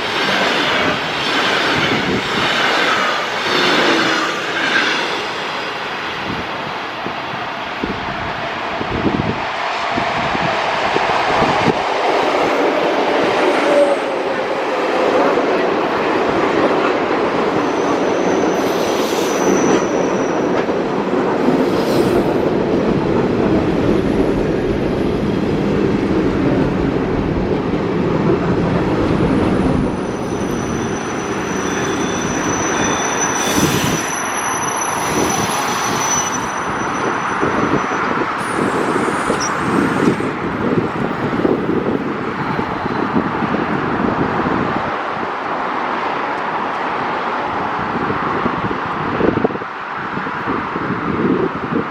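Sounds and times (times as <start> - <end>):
high-pitched wheel squeals: 17.6 - 20.5, 30.0 - 40.1.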